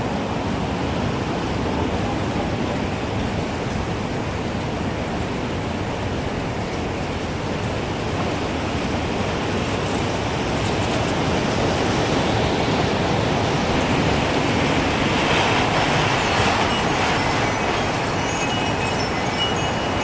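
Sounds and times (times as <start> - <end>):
gusting wind: 0.0 - 20.0
wind chimes tinkling: 13.7 - 20.0.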